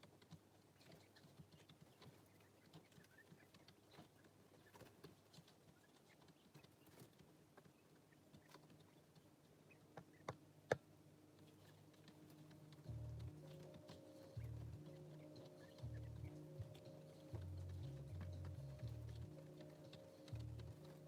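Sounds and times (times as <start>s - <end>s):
chicks pecking taps: 0.0s - 21.0s.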